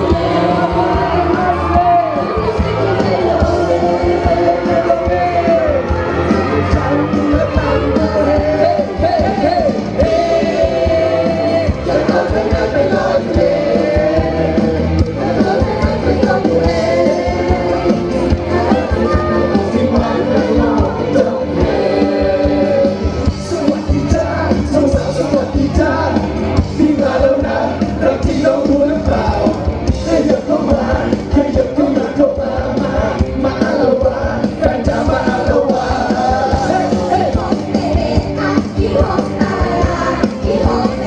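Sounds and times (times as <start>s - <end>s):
audience yelling: 0.0s - 12.1s
live band with sung vocals: 0.0s - 41.0s.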